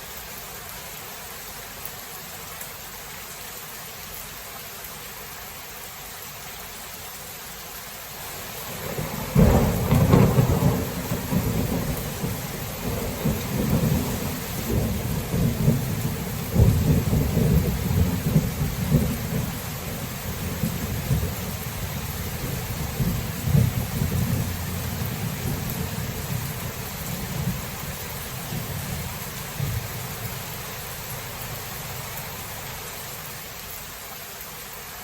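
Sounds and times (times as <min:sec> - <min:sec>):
rain hiss: 0:00.0 - 0:35.0
rolling thunder: 0:08.6 - 0:30.4.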